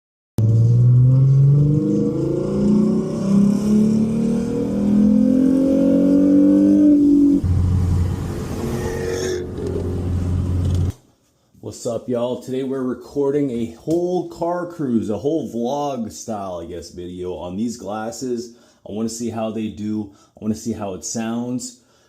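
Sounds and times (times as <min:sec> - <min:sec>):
car engine accelerating: 0:00.4 - 0:10.9.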